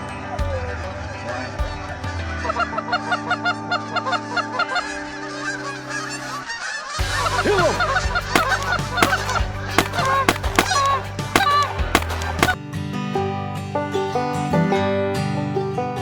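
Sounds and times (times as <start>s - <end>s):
flock of geese honking: 2.4s - 12.6s.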